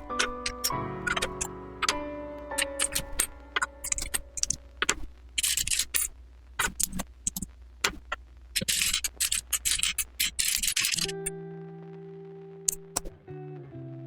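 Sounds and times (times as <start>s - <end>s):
plastic bricks clicking and rattling: 2.6s - 8.0s, 8.6s - 11.2s
hands rustling through bricks: 2.6s - 11.2s.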